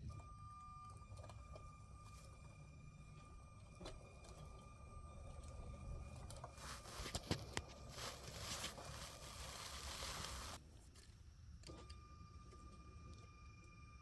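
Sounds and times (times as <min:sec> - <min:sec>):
toy train rolling on track: 0:06.0 - 0:10.6.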